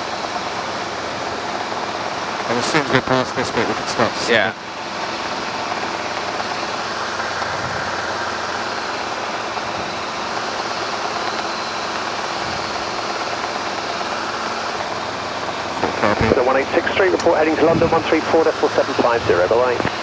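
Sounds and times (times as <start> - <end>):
helicopter engine and rotor drone: 0.0 - 20.0.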